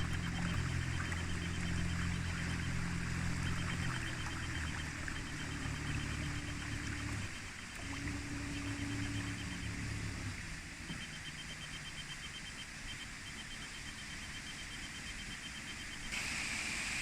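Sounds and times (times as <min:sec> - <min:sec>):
engine humming: 0:00.0 - 0:12.3
high-pitched pulsing: 0:00.0 - 0:15.6.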